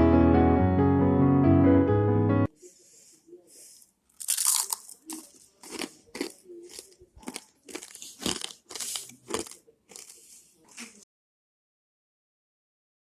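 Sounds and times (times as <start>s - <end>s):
rice crackers crunching: 4.1s - 11.0s.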